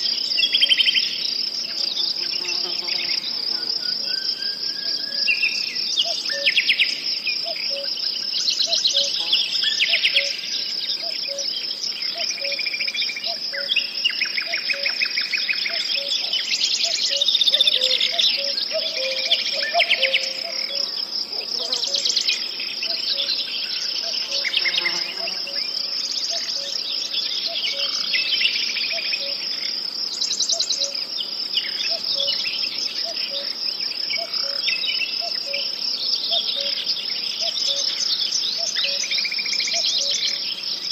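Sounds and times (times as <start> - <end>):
crickets chirping: 0.0 - 40.9
birds chirping and trilling: 15.2 - 40.9.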